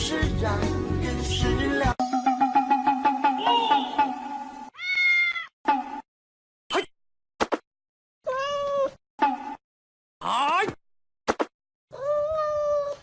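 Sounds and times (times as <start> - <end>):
cat meowing: 4.8 - 5.5, 8.2 - 9.0, 11.9 - 13.0.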